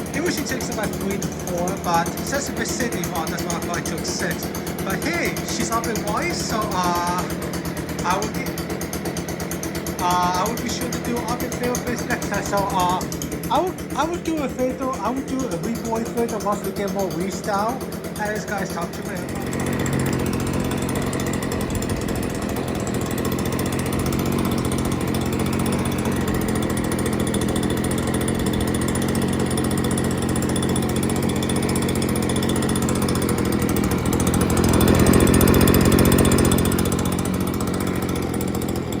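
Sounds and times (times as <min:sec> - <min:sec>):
leaf blower engine running: 0:00.0 - 0:39.0.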